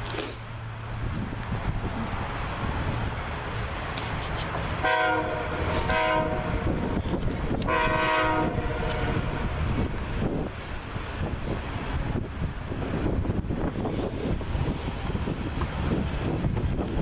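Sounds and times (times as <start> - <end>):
low rumble of passing train: 0.0 - 17.0
locomotive air horn blasts: 4.8 - 7.0, 7.6 - 9.6.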